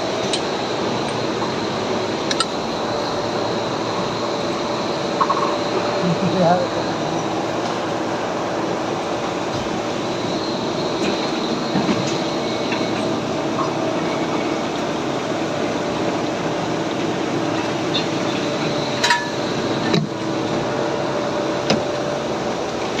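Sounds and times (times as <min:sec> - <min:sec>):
gear machining machine humming: 0:00.0 - 0:23.0.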